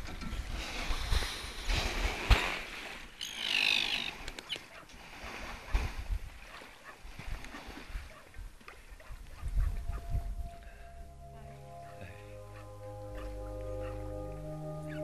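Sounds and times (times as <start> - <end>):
kayak paddling water: 0.0 - 15.0
wavering bird call: 3.2 - 4.2, 9.8 - 15.0.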